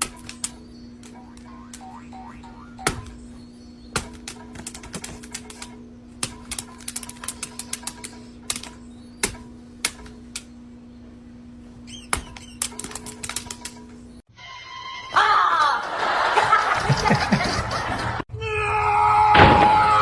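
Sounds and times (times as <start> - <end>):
steady low hum: 0.0 - 14.3.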